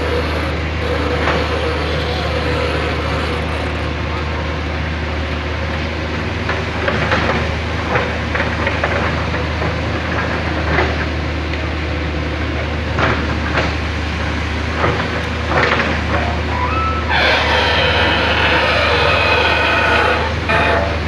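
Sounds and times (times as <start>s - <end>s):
excavator diesel engine running: 0.0s - 21.0s
machine clanks and knocks: 6.4s - 11.2s, 12.9s - 13.9s, 14.7s - 21.0s.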